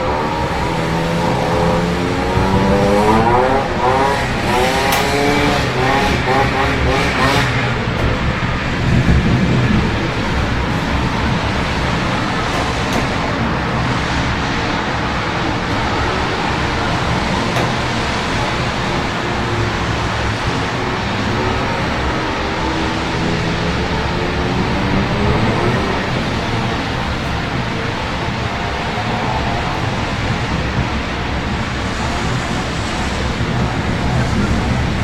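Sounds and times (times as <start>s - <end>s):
city traffic: 0.0s - 35.0s
rain hiss: 0.0s - 35.0s
vehicle engine revving: 0.0s - 35.0s.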